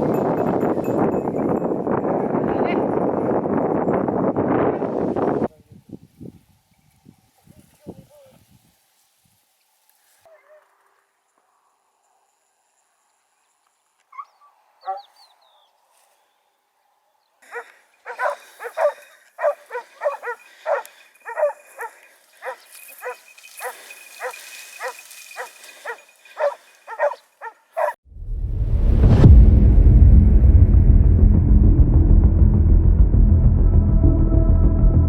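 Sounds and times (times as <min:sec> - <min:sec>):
dog barking: 0:10.3 - 0:10.7, 0:14.1 - 0:15.2, 0:17.4 - 0:28.0
loud low rumble: 0:28.0 - 0:35.0.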